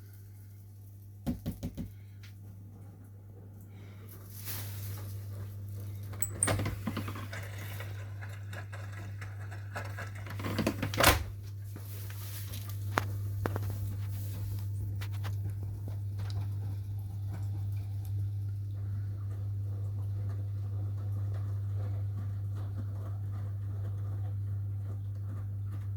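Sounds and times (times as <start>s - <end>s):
washing machine hum: 0.0s - 25.9s
washing machine clicks and knocks: 1.3s - 2.0s, 6.1s - 11.4s.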